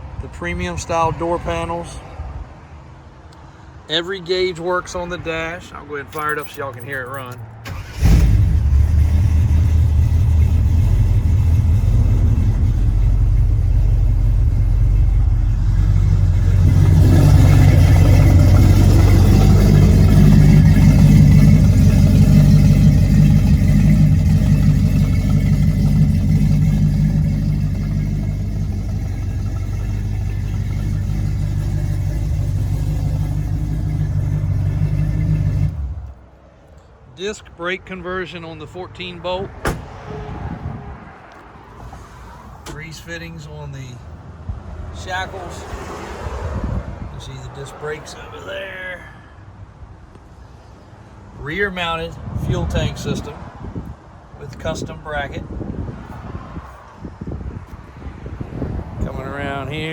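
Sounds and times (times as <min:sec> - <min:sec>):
truck engine running: 0:06.2 - 0:36.2.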